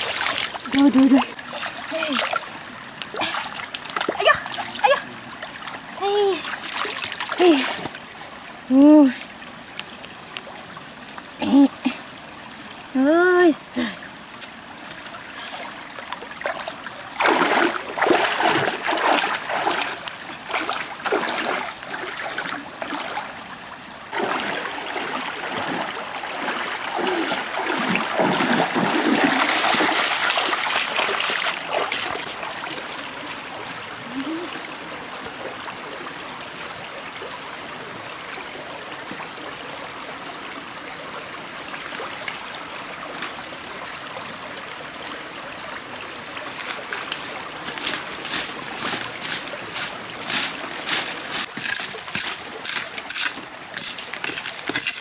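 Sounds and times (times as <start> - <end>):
water splashing: 0.0 - 8.4, 14.9 - 23.4, 24.1 - 36.7, 46.4 - 55.0
stream flowing: 0.0 - 55.0.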